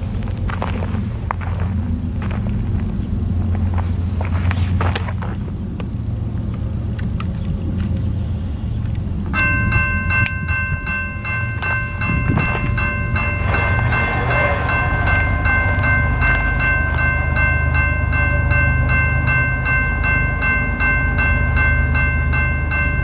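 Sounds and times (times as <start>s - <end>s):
diesel locomotives rumbling: 0.0s - 23.0s
held chord of high tones: 9.4s - 23.0s.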